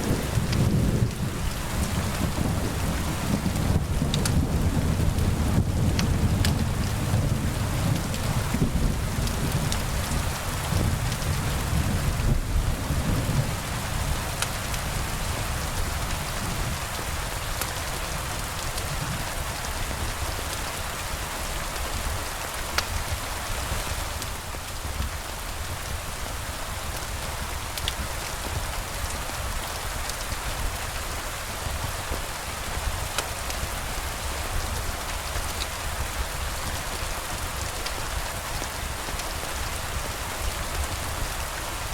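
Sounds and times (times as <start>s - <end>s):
thunder rumble: 0.0s - 16.8s
steady rain: 0.0s - 41.9s.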